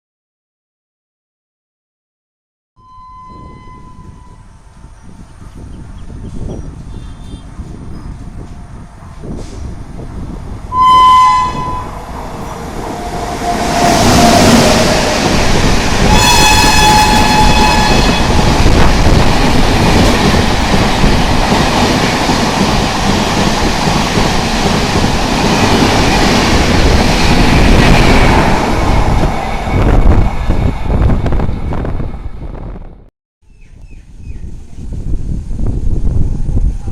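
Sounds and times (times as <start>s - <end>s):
train horn blasts: 2.8s - 4.6s, 10.7s - 12.1s, 16.0s - 18.5s
train wheels rushing on rails: 4.6s - 10.8s, 11.4s - 32.8s.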